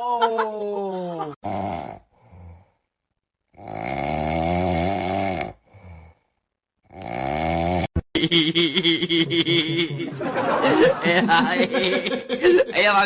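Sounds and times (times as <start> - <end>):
person snoring: 1.3 - 2.9, 3.5 - 8.1.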